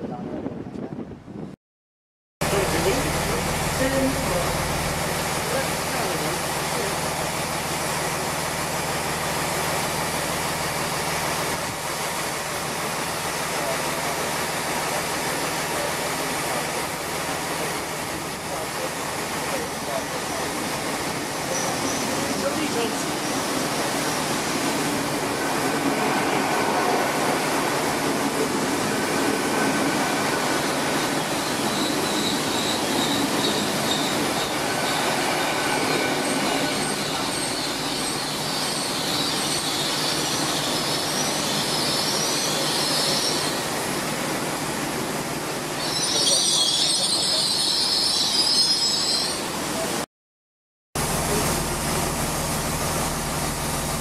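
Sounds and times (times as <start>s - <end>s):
diesel train approaching: 2.4s - 50.0s
train rolling noise: 2.4s - 50.0s
high-pitched wheel squeals: 31.0s - 43.7s, 45.8s - 49.6s.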